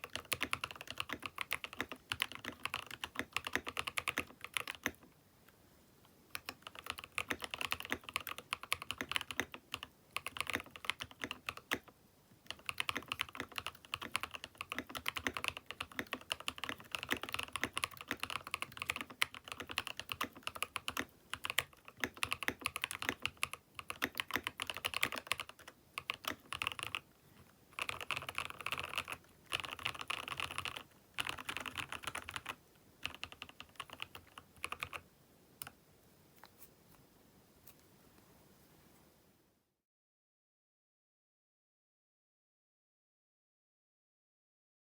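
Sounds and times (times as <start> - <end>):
mechanical keyboard typing: 0.0 - 5.1, 6.3 - 27.0, 27.8 - 35.0.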